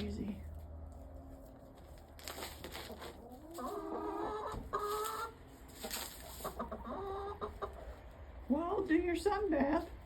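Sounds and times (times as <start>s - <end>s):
chickens clucking: 0.8s - 9.0s
scratchy rustling: 1.0s - 3.8s, 4.8s - 6.6s.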